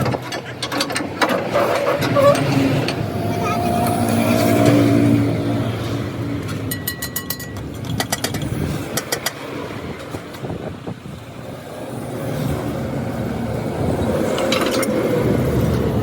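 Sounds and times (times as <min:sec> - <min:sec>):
engine rumbling: 0:00.0 - 0:16.0.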